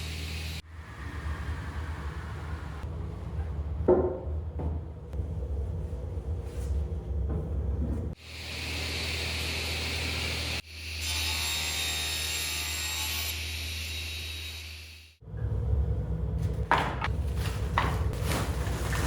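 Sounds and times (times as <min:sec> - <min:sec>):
power saw cutting wood: 0:08.2 - 0:15.0
saw whine: 0:08.2 - 0:15.2.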